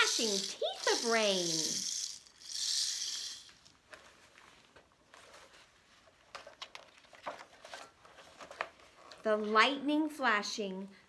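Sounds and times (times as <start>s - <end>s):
rain stick beads cascading: 0.0s - 3.7s.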